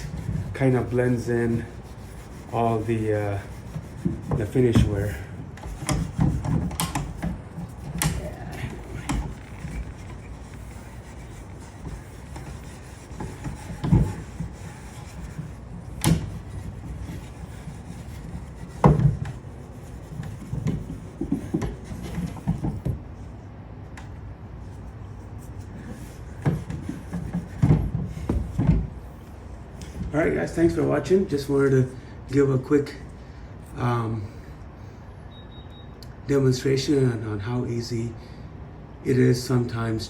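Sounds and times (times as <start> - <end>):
hand rubbing wooden surface: 0.0 - 23.3, 24.6 - 31.6.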